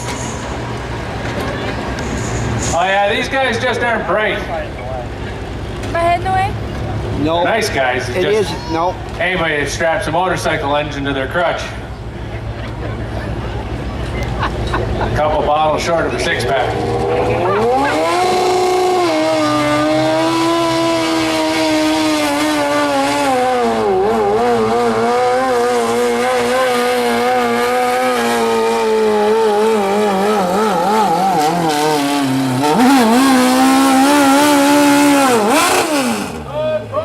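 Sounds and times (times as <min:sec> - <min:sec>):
tractor engine revving hard: 0:13.7 - 0:36.6.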